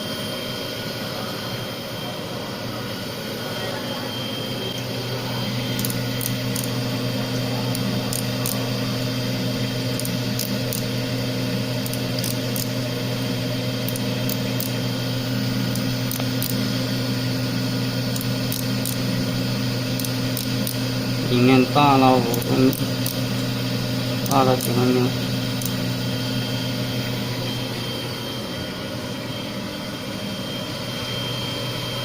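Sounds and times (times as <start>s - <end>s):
grinder humming: 4.4s - 29.3s.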